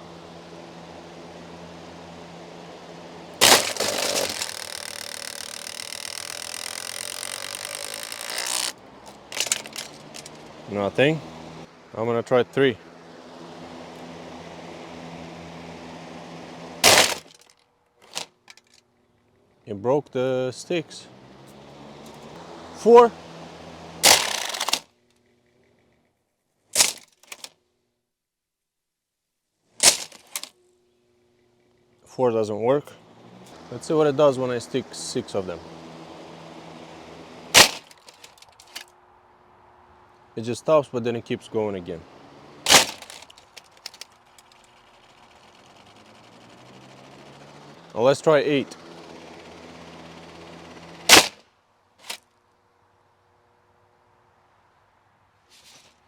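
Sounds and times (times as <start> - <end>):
fan blades clattering on sticks: 0.0 - 11.6, 13.3 - 18.8, 21.4 - 24.9, 29.8 - 30.5, 33.0 - 38.9, 41.4 - 51.4
box fan humming: 0.0 - 26.1, 29.8 - 51.4
clicks: 3.4 - 10.5.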